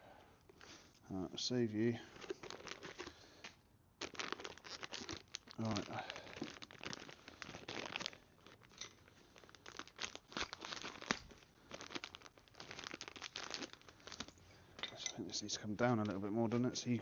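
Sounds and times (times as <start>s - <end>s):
packaging crinkling: 2.0s - 14.8s.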